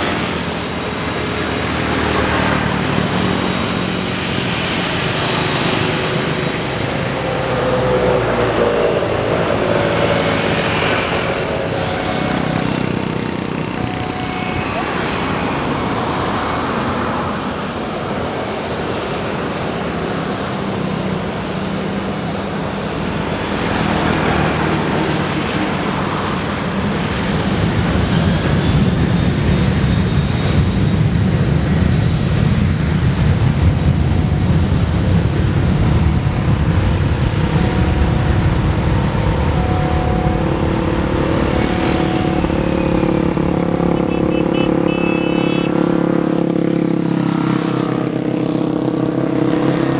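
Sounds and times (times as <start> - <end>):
jet engines running: 0.0 - 49.9
high whine rising in pitch: 2.6 - 23.7, 33.4 - 46.6.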